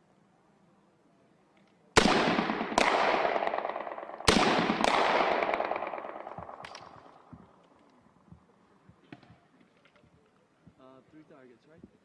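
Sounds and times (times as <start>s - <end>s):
assault rifle shots echoing: 2.0s - 7.5s.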